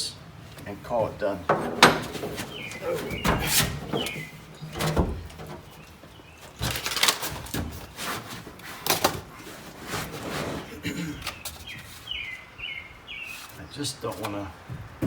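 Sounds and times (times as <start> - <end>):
mat crinkling and tapping: 0.4 - 10.2.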